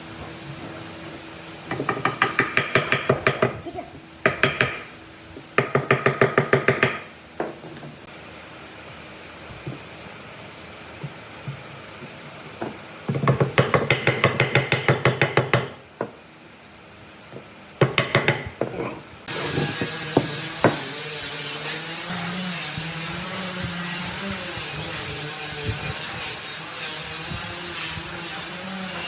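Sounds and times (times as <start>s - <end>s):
power tool running: 19.2s - 29.0s.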